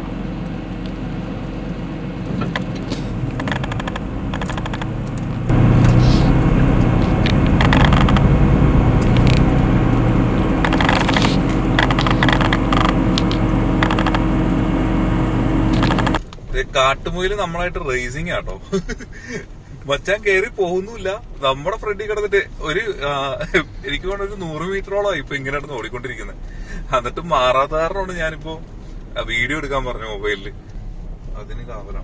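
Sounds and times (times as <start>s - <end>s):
vehicle body rattling: 0.0s - 19.0s
jeep engine running: 0.0s - 32.0s.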